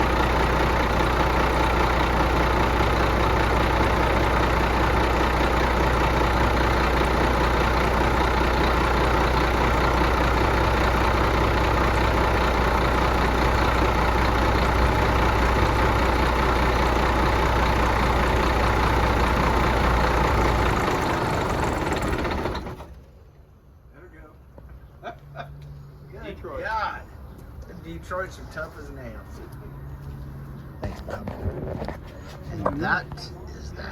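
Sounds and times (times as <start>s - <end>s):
diesel engine running loud: 0.0s - 23.1s.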